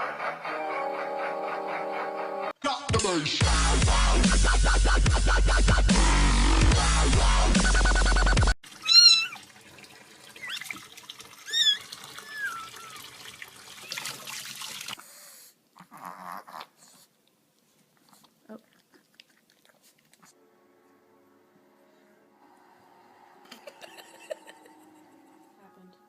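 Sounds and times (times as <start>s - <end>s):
loud electronic music: 0.5s - 8.5s
cat meowing: 8.8s - 9.4s, 11.5s - 13.0s
faint small noises: 15.0s - 21.1s.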